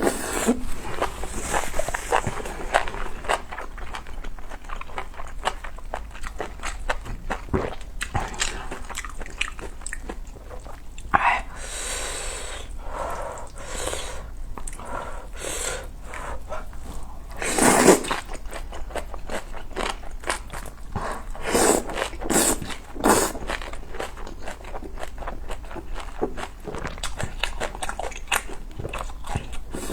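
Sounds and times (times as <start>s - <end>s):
slurping noodles: 0.0s - 3.2s, 17.3s - 18.4s, 21.0s - 23.6s, 29.7s - 29.9s.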